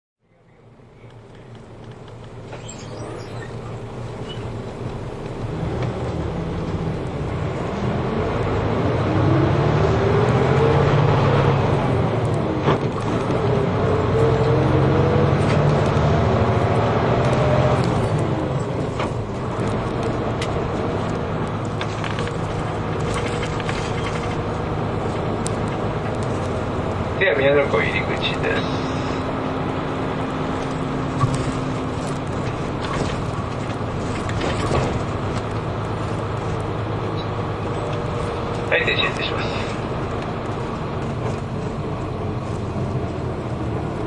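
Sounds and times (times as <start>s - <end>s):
bus engine pulling away: 0.3s - 44.0s
whine rising in pitch: 2.5s - 4.6s.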